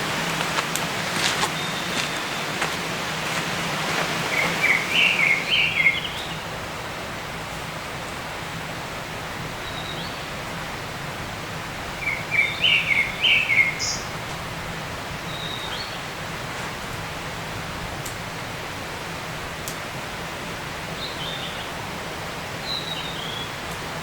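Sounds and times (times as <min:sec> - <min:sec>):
rushing outdoor background hiss: 0:00.0 - 0:24.0
songbird warbling: 0:04.2 - 0:06.4, 0:12.0 - 0:14.1.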